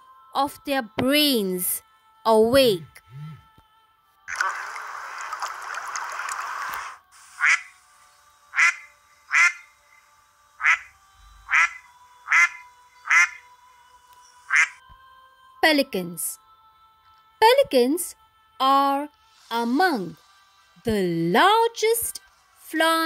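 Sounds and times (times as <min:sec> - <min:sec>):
duck quacking: 0:07.4 - 0:07.7, 0:08.5 - 0:09.7, 0:10.6 - 0:10.9, 0:11.5 - 0:13.4, 0:14.5 - 0:14.8.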